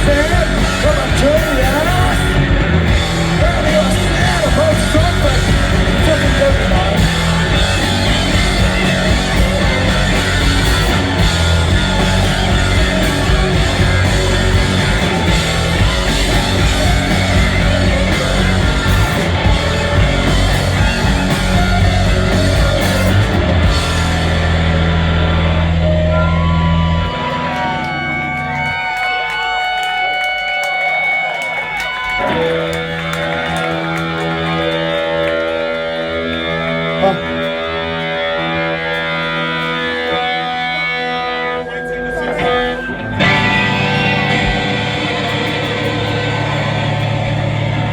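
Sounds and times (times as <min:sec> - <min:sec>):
drum kit: 0:00.0 - 0:26.0, 0:43.2 - 0:47.9
bass guitar: 0:00.0 - 0:47.9
distorted electric guitars: 0:00.0 - 0:47.9.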